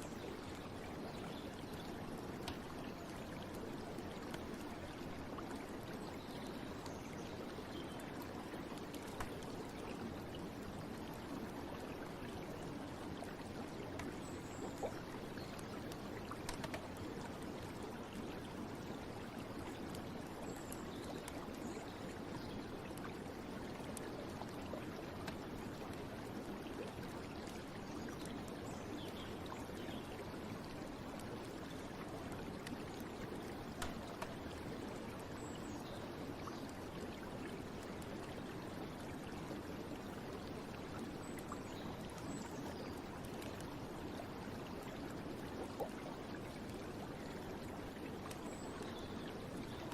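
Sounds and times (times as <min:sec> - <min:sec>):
stream water flowing: 0:00.0 - 0:49.9.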